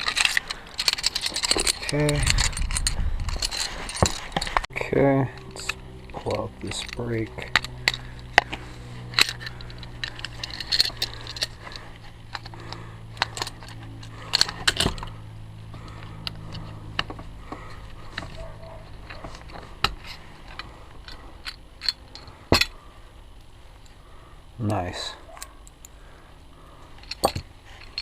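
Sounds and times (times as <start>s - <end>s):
metal brake parts clinking and scraping: 0.0s - 24.0s, 26.8s - 28.0s.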